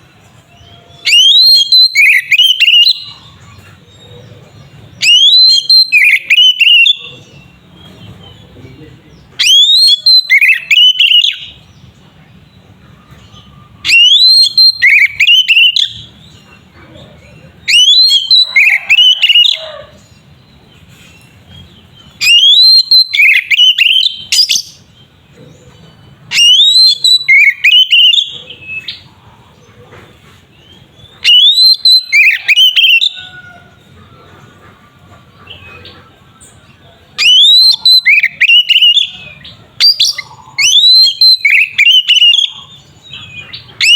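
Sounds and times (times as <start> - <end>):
bird singing whistled phrases: 0.6 - 3.3, 5.0 - 7.1, 9.3 - 11.6, 13.4 - 16.1, 17.7 - 19.7, 22.2 - 24.9, 26.3 - 29.0, 31.2 - 33.3, 37.2 - 43.9.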